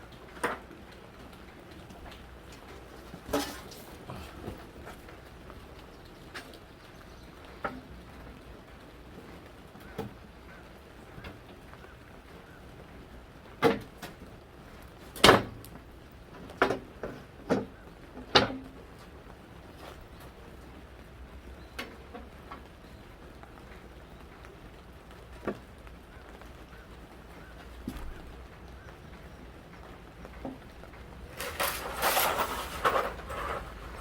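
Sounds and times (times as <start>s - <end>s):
hard objects knocking and clanking: 31.2s - 34.0s.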